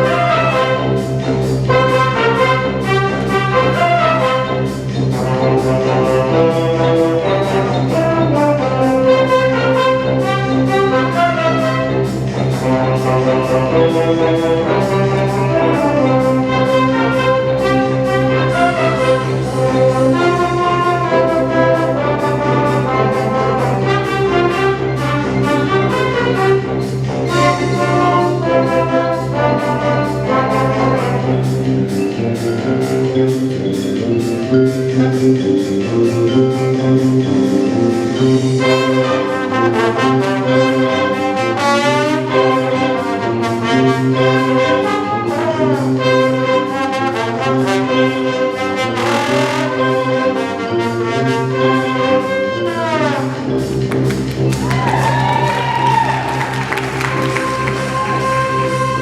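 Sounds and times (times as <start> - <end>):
wind band playing: 0.0 - 59.0.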